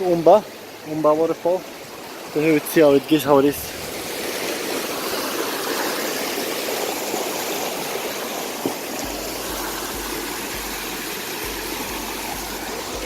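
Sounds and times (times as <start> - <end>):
waterfall rushing and splashing: 0.0 - 13.0
low pulsing rumble: 9.0 - 13.0.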